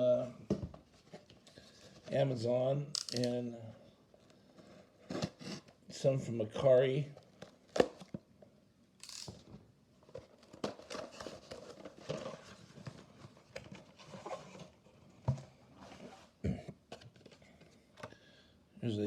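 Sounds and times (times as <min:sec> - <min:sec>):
packaging rustling: 0:10.1 - 0:14.6.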